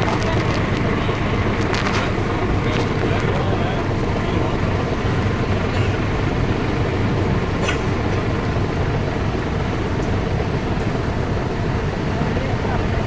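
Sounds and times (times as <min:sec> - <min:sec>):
tractor engines rumbling: 0:00.0 - 0:13.0.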